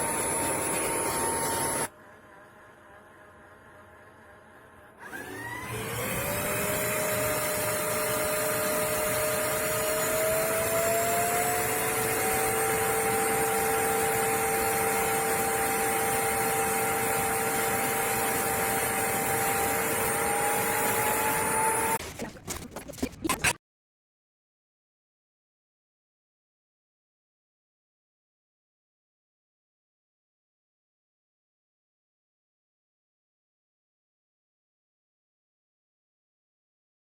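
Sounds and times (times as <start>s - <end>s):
vacuum motor whining: 0.0s - 22.4s.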